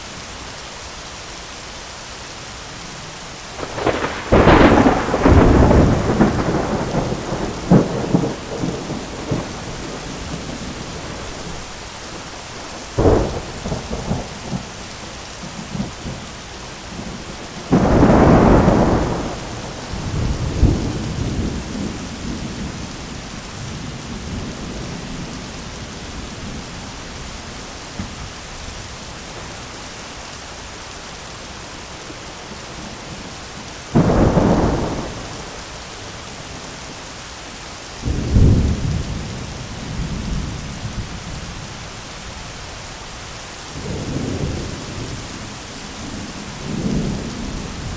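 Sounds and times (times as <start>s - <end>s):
rain hiss: 0.0s - 47.9s
sharp thunder crack: 3.6s - 10.4s, 17.7s - 22.0s
thunder rolling: 3.6s - 11.6s, 16.9s - 22.9s, 33.9s - 35.6s.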